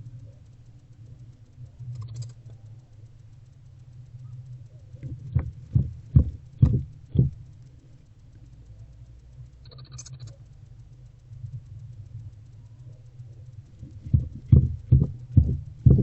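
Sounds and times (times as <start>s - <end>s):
steady low hum: 0.0s - 16.0s
dull thumps in wooden nest box: 5.4s - 7.4s.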